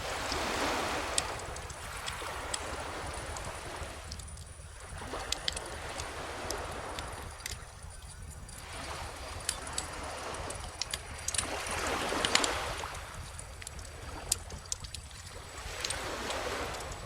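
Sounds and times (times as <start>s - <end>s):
wood fire crackling: 1.0s - 8.6s, 9.4s - 12.5s.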